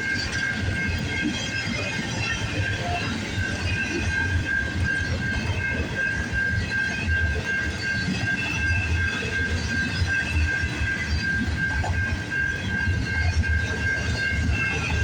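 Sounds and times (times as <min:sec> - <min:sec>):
freight train rumbling: 0:00.0 - 0:15.0
high-pitched wheel squeal: 0:00.0 - 0:15.0.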